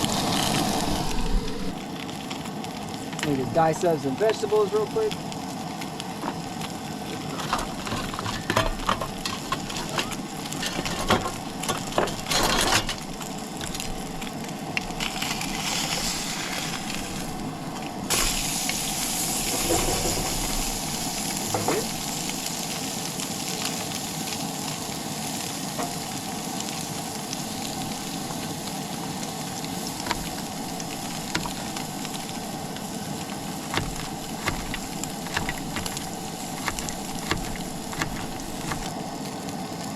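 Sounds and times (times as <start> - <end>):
fish frying in oil: 0.0 - 39.9
clicks and knocks: 30.0 - 32.9, 33.6 - 38.9.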